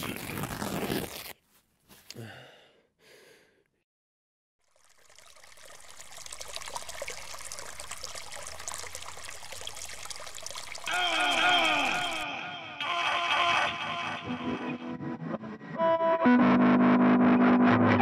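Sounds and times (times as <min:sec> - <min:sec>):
short breathy sounds: 0:01.9 - 0:03.8
water trickling: 0:04.6 - 0:12.2.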